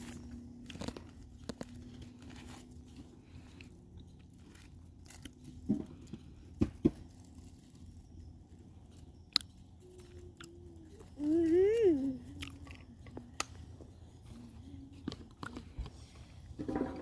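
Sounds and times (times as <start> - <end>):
faint steady hum: 0.0 - 17.0
person chewing food: 3.2 - 5.7, 12.3 - 13.7.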